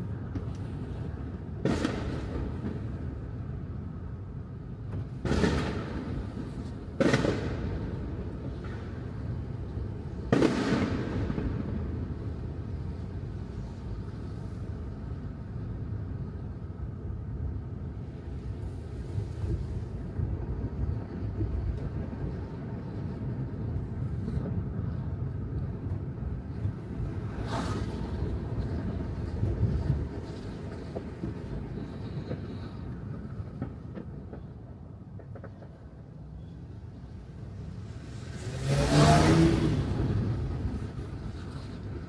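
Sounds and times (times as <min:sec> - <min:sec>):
tyre and road noise: 0:17.6 - 0:42.0.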